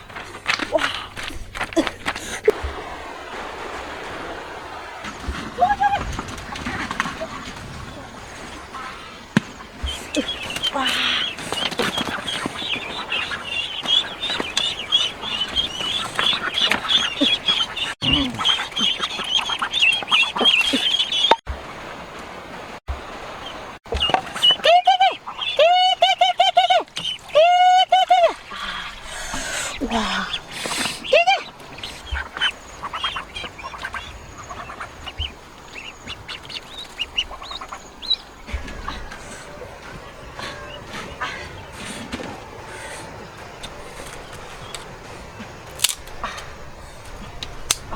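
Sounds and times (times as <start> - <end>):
ducklings peeping: 8.8 - 21.4, 23.4 - 45.4.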